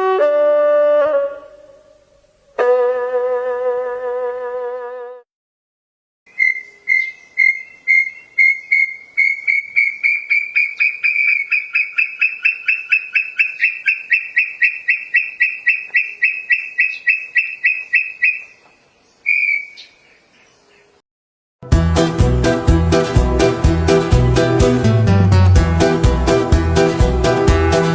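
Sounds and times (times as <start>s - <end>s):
bird whistling clear notes: 6.3s - 18.5s, 19.2s - 20.0s.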